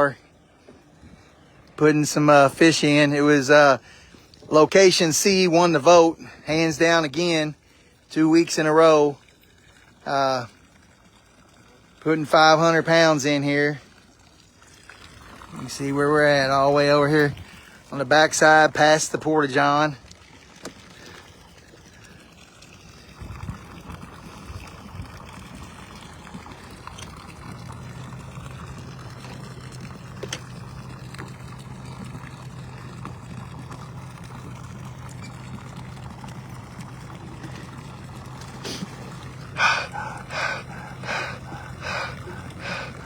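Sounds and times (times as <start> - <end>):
water pouring into lake: 0.0 - 43.0
steady low hum: 23.0 - 43.0.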